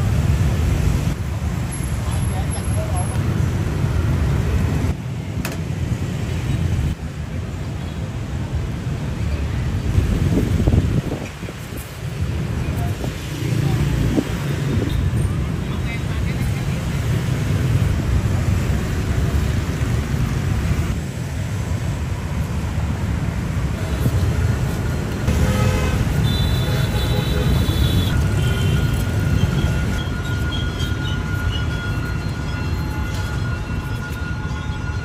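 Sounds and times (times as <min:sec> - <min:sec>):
train rumbling: 0:09.9 - 0:35.0.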